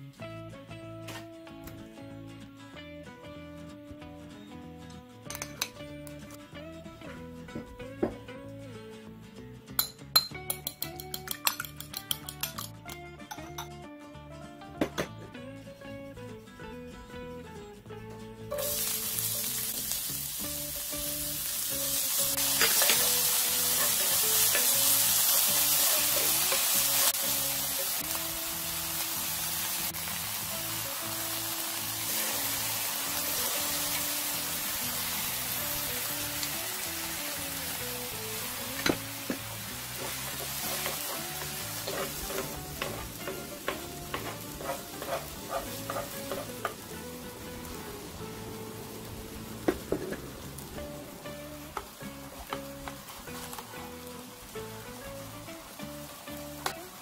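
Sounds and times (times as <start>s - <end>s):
soft background music: 0.0s - 57.0s
onion sizzling in a frying pan: 18.4s - 57.0s.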